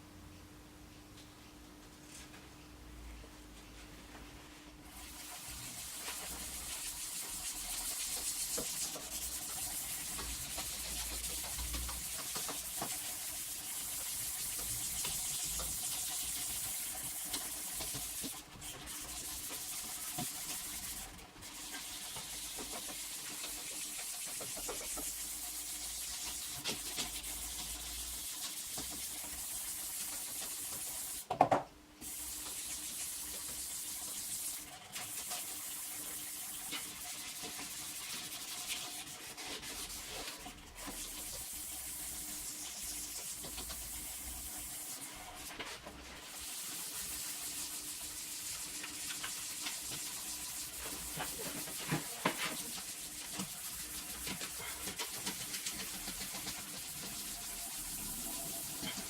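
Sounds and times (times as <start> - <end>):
sandpaper rubbing on plastic: 5.7 - 22.9, 35.0 - 42.2, 42.9 - 59.0.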